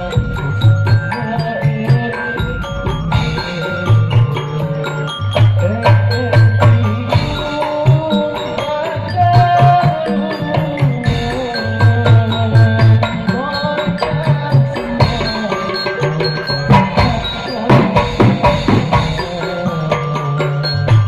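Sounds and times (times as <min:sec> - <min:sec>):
hand drums playing fast rhythm: 0:00.0 - 0:21.0
melody line: 0:00.0 - 0:21.0.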